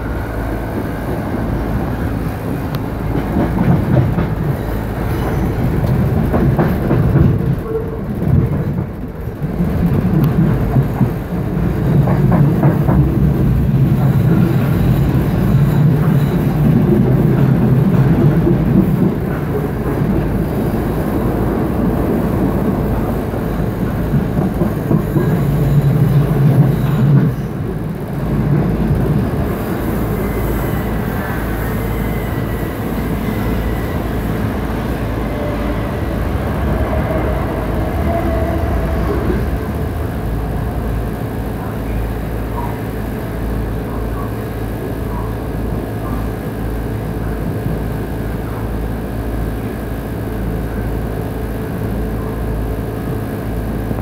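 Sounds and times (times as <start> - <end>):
train rumble and rattle: 0.0 - 54.0
train wheels squealing: 4.4 - 6.1, 13.7 - 17.6, 25.0 - 27.6, 29.5 - 39.7.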